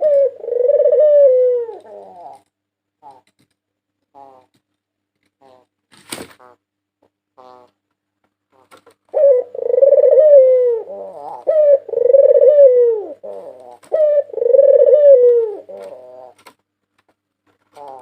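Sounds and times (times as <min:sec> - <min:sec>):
dove cooing: 0:00.0 - 0:03.3, 0:09.1 - 0:16.5.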